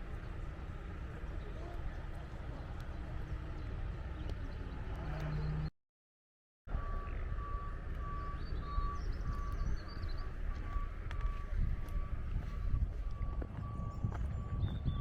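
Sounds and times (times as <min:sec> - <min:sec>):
low rumble: 0:06.7 - 0:15.0
reversing alarm beeping: 0:06.7 - 0:15.0.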